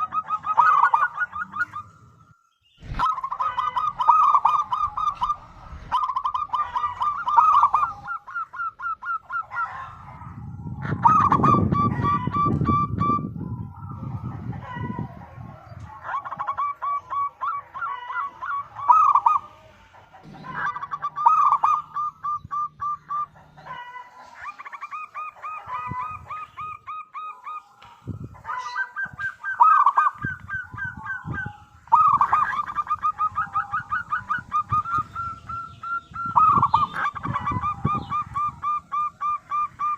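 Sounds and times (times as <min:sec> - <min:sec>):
dove cooing: 0:00.0 - 0:39.9
low rumble: 0:02.8 - 0:07.3.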